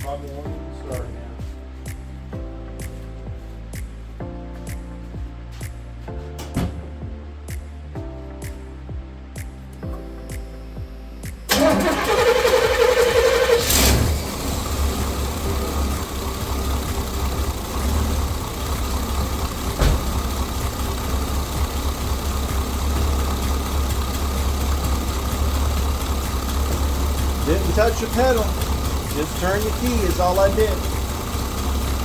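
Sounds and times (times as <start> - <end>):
engine idling: 11.5 - 32.0
starter cranking engine: 11.5 - 32.0.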